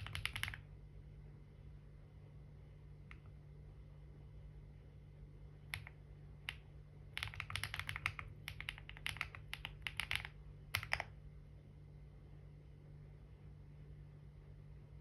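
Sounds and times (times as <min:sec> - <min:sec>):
typing on computer keyboard: 0:00.0 - 0:00.6, 0:05.7 - 0:06.6, 0:07.2 - 0:11.2
faint low hum: 0:00.0 - 0:15.0.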